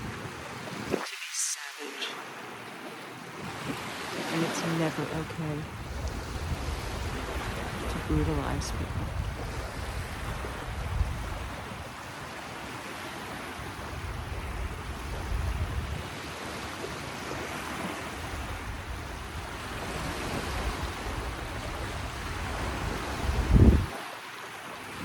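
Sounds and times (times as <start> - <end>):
wind rumble on microphone: 0.0 - 1.0, 5.5 - 12.4, 13.5 - 24.1
ocean waves washing ashore: 0.0 - 25.0.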